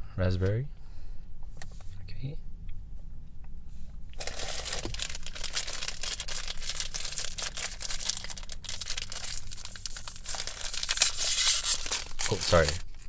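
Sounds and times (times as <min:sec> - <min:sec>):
plastic wrapper crinkling: 0:04.2 - 0:13.0.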